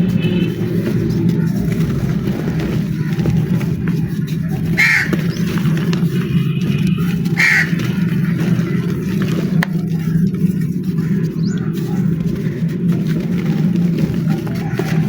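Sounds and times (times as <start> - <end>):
crow cawing: 2.7 - 9.0.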